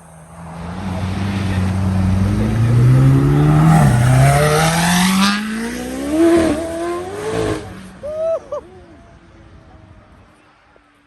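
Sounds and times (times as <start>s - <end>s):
sports car engine accelerating: 0.2s - 8.0s.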